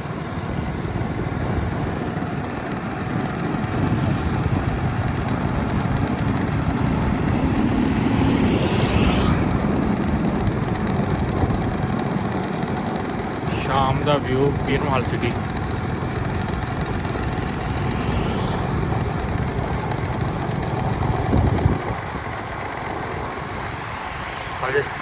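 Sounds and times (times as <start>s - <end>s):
vehicle engine and road rumble: 0.0s - 25.0s
rising whoosh: 3.2s - 11.7s, 15.4s - 25.0s.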